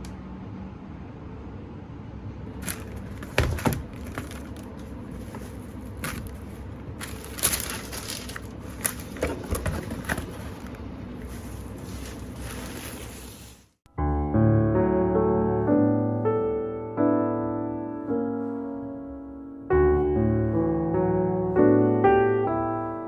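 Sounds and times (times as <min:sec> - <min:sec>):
objects clicking and knocking: 0:02.6 - 0:13.2.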